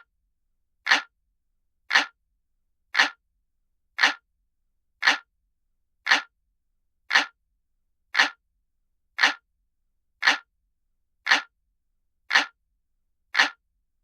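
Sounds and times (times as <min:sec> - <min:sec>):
clock ticking: 0:00.9 - 0:01.1, 0:01.9 - 0:02.2, 0:03.0 - 0:03.2, 0:04.0 - 0:04.2, 0:05.0 - 0:05.3, 0:06.1 - 0:06.3, 0:07.1 - 0:07.4, 0:08.2 - 0:08.4, 0:09.2 - 0:09.4, 0:10.2 - 0:10.5, 0:11.2 - 0:11.5, 0:12.3 - 0:12.6, 0:13.3 - 0:13.6.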